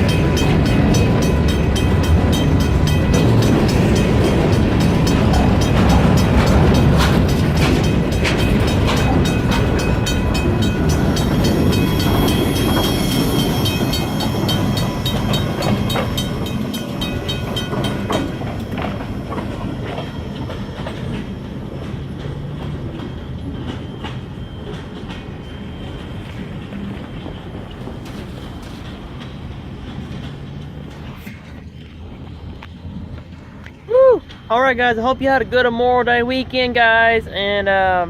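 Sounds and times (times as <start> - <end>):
high squeal from wheels: 0.0 - 29.5
train wheels clicking over rail joints: 0.0 - 34.5
low rumble of train: 0.0 - 38.0.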